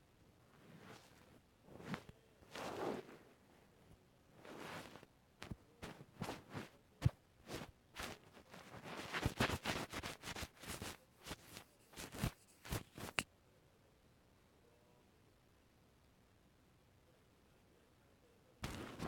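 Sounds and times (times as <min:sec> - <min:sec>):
rustling scrapes: 0:00.5 - 0:03.4, 0:04.4 - 0:06.8, 0:07.5 - 0:13.2, 0:18.6 - 0:19.0.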